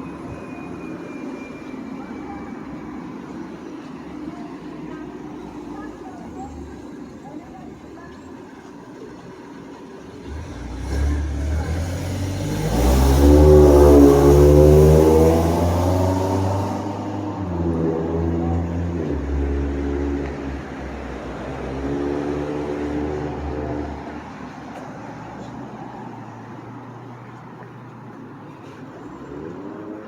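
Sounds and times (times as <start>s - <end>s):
vehicle passing and accelerating: 9.5s - 30.0s.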